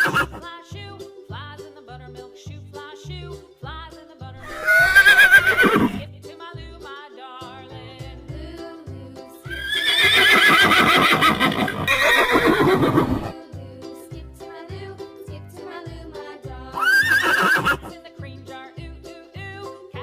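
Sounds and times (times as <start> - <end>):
horse whinnying: 0.0 - 0.4, 4.4 - 6.0, 9.5 - 13.3, 16.8 - 17.9
background music with steady beat: 0.0 - 20.0.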